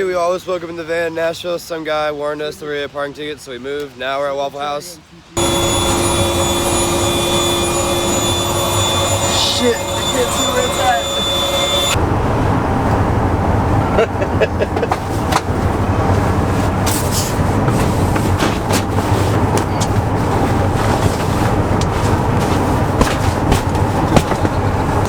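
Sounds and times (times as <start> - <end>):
vehicle road noise rumble: 11.9 - 25.0.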